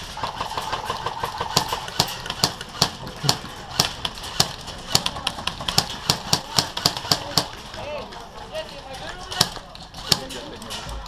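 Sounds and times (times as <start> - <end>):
airsoft gun shots: 0.8 - 7.6.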